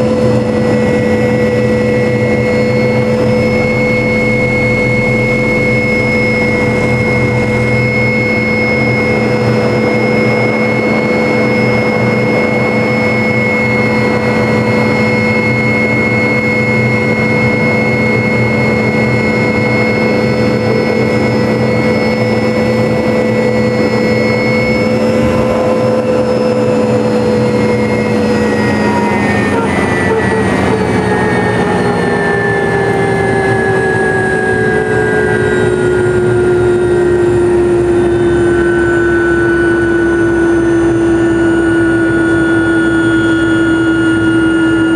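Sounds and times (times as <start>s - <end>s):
helicopter engine whine: 0.0s - 44.9s.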